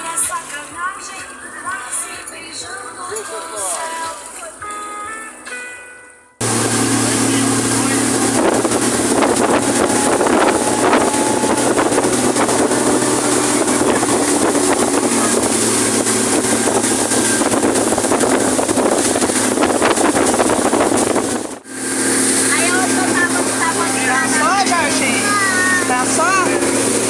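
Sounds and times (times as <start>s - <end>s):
rushing water: 6.4s - 27.0s
speedboat engine drone: 6.4s - 27.0s
wind buffeting microphone: 6.4s - 27.0s.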